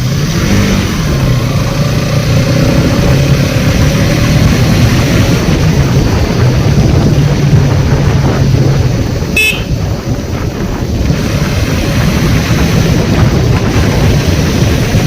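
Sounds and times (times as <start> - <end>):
motorcycle engine running: 0.0 - 15.0
short horn toot: 9.4 - 9.8.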